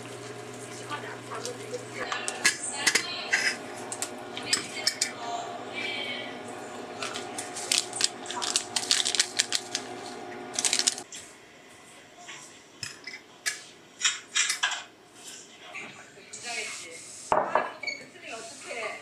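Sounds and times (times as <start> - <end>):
steady hum: 0.0 - 11.7
utensils and dishware clattering: 1.4 - 3.6, 12.8 - 14.9.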